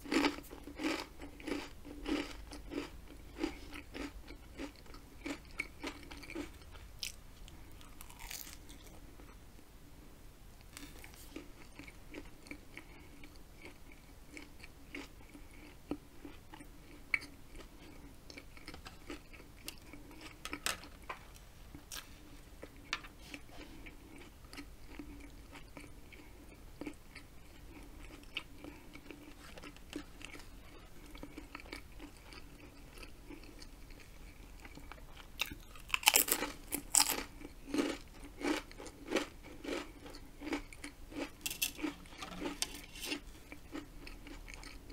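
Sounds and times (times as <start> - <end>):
potato chip crunching: 0.0 - 9.0, 34.6 - 44.9
person chewing with mouth clicks: 0.0 - 9.4, 10.6 - 21.1, 21.7 - 44.9.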